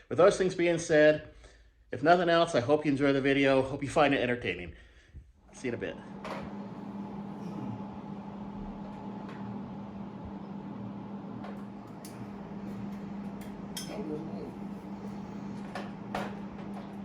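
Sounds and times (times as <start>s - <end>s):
steady low hum: 5.2s - 17.0s.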